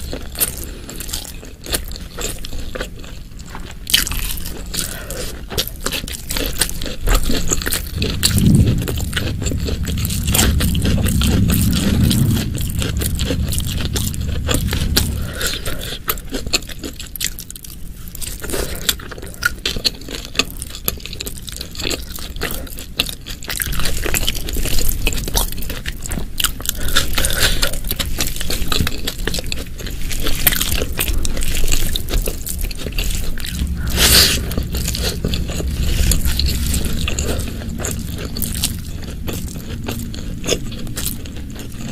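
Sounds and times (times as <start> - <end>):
chewing food: 0.0 - 41.9
low rumble: 6.1 - 18.4, 30.6 - 41.9.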